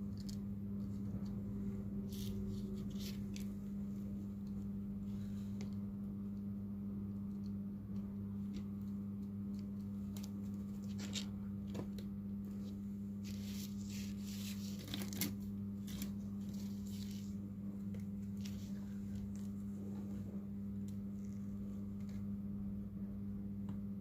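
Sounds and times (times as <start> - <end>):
low electrical hum: 0.0 - 24.0
small scrapes and clicks: 8.5 - 17.4.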